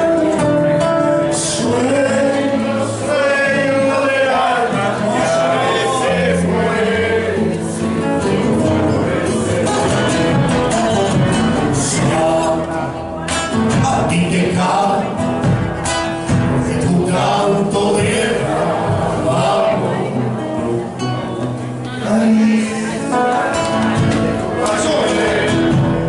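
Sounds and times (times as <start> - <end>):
group singing folk song: 0.0 - 26.0
instrumental accompaniment: 0.0 - 26.0.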